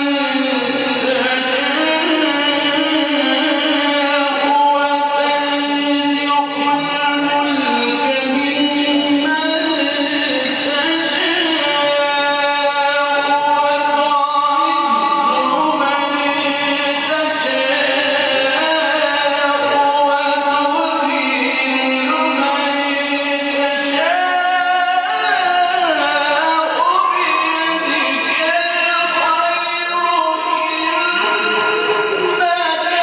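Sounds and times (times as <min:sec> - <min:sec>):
man chanting melodic recitation: 0:00.0 - 0:33.0.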